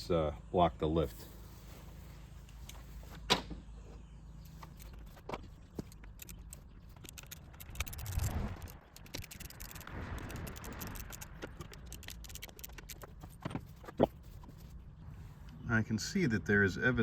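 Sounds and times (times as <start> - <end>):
clicks of tools and screws: 4.4 - 13.6.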